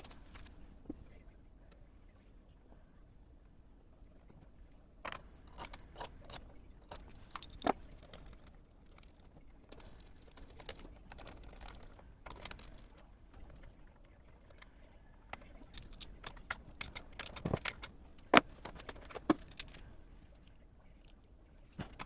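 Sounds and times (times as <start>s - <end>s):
small metal parts clattering: 5.0s - 13.6s, 15.4s - 19.9s, 21.8s - 22.0s.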